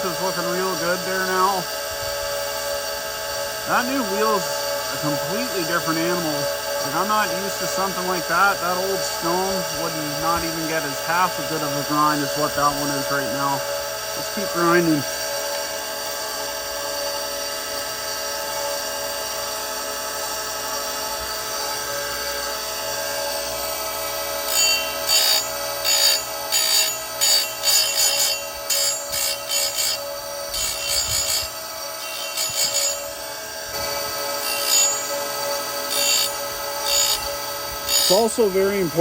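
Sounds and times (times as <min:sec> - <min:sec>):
grinder motor humming: 0:00.0 - 0:39.0
grinding wheel rasping on chain: 0:03.7 - 0:15.5, 0:24.4 - 0:39.0.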